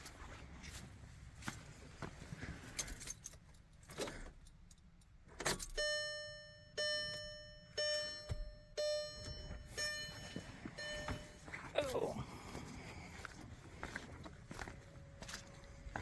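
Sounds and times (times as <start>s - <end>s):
keys jangling: 2.7s - 5.8s
car electronic warning chime: 5.6s - 11.5s, 14.5s - 16.0s.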